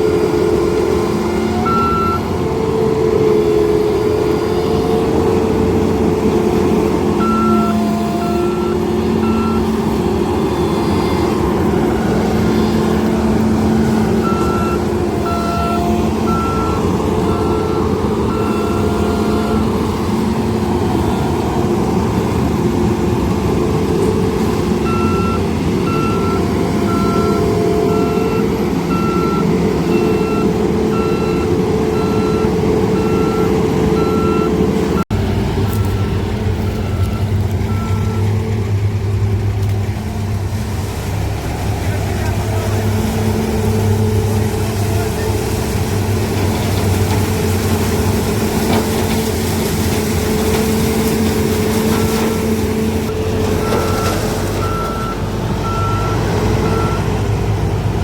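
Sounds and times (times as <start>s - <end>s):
harvester engine running: 0.0s - 58.0s
reversing alarm beeping: 0.1s - 2.4s, 7.2s - 20.3s, 24.8s - 35.0s, 35.7s - 38.5s, 53.1s - 57.2s.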